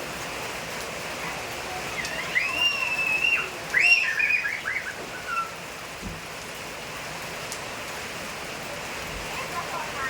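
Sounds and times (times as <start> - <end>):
steady rain: 0.0 - 10.0.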